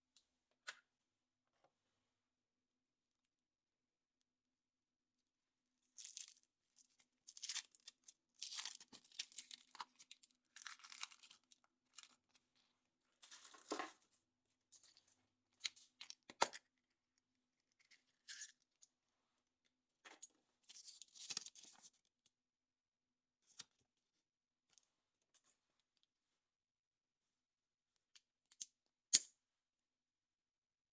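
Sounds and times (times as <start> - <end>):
foil wrapper tearing and crinkling: 10.6 - 11.4.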